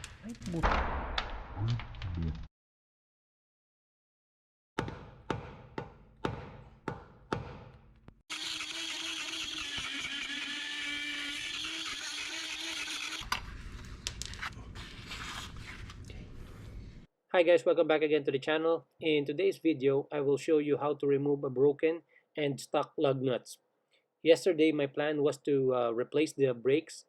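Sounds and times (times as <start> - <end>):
hammer striking metal: 4.8 - 7.8
power tool running: 8.3 - 13.3.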